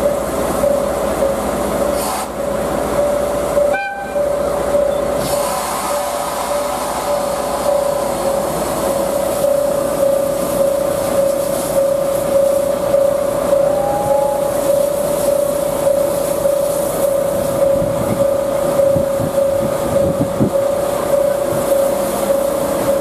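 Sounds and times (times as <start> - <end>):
high ringing tone: 3.0 - 5.2, 9.2 - 23.0
locomotive toot: 3.0 - 5.3, 10.0 - 22.5.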